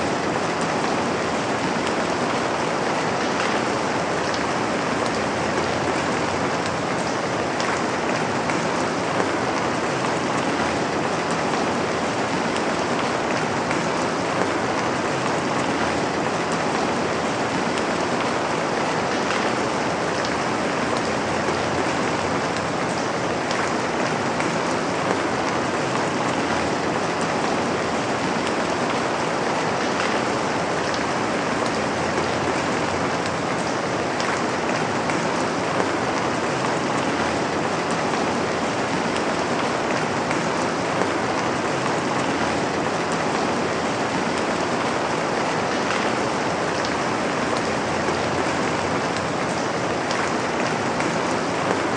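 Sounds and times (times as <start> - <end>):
steady rain hiss: 0.0 - 51.9.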